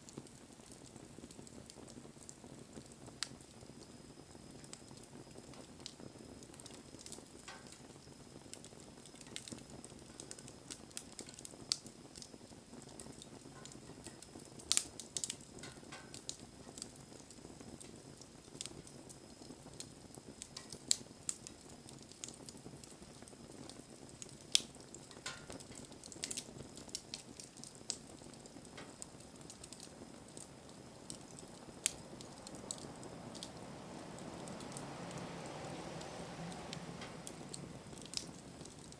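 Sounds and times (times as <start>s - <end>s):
campfire hissing: 0.0s - 38.9s
fire crackles and pops: 0.0s - 38.9s.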